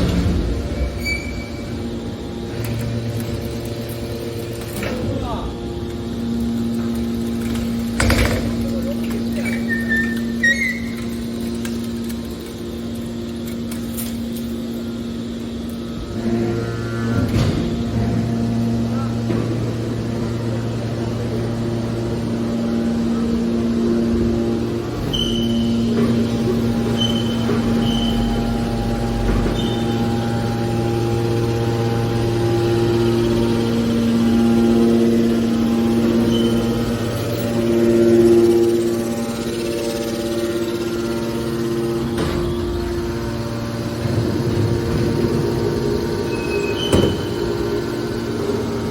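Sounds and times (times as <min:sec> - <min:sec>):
hydraulic machine hum: 0:00.0 - 0:48.9
high squeak: 0:09.4 - 0:11.2, 0:36.2 - 0:36.8.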